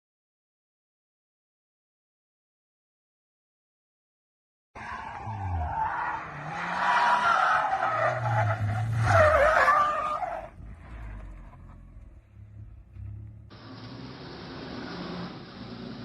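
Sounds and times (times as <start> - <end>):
car tyres squealing: 4.8 - 16.0
car engine revving: 5.1 - 16.0.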